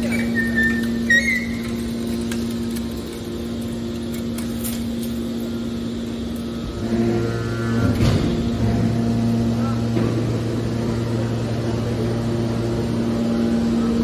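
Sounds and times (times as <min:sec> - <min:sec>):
metal baler hum: 0:00.0 - 0:14.0.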